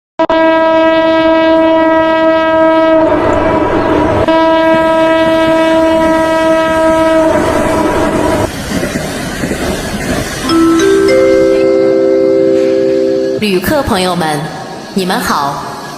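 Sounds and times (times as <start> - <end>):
train horn blasts: 0.2 - 8.4, 10.7 - 13.4
train rumbling on rails: 0.6 - 15.9.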